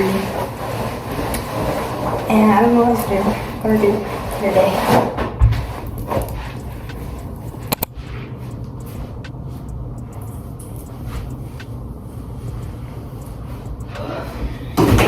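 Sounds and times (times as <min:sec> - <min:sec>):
low rumble: 0:05.7 - 0:14.8
sharp clicks: 0:06.0 - 0:11.7.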